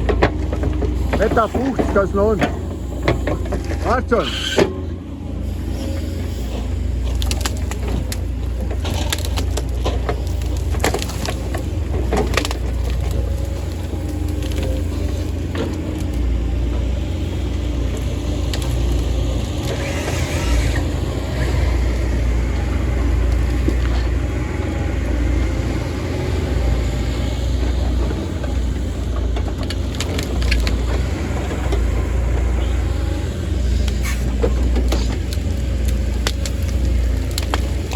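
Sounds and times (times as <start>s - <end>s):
diesel machinery rumbling: 0.0s - 37.9s
squeaks and creaks: 3.6s - 4.8s, 19.6s - 21.8s.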